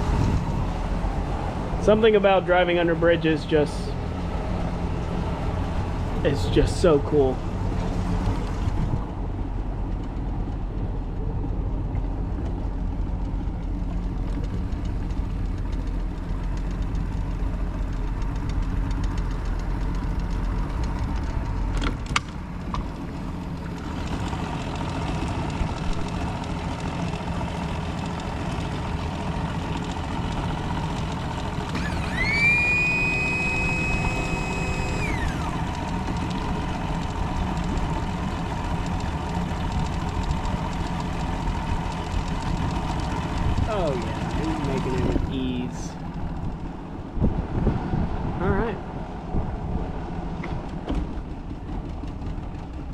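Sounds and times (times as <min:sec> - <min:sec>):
outboard motor running: 0:00.0 - 0:52.9
high whistling tone: 0:31.8 - 0:35.5.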